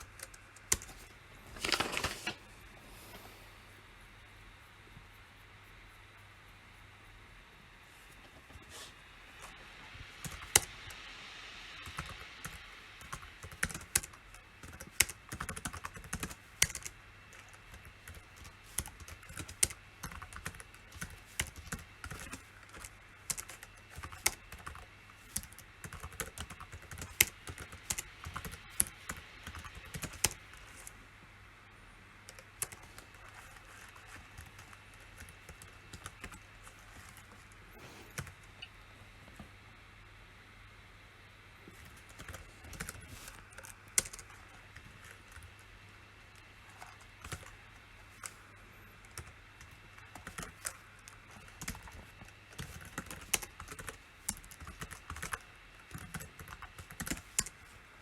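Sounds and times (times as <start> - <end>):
typing on computer keyboard: 0.0 - 2.1, 10.2 - 10.7, 11.8 - 30.9, 32.3 - 37.5, 41.8 - 45.6, 46.7 - 48.4, 49.0 - 57.6.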